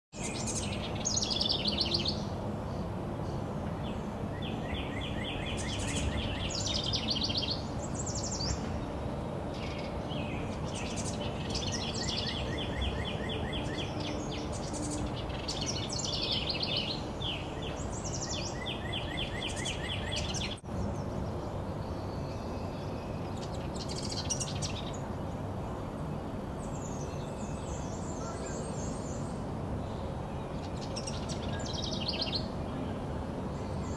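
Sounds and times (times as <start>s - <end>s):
wren song trills and chatter: 0.1s - 33.9s
outdoor background hiss: 0.2s - 33.9s.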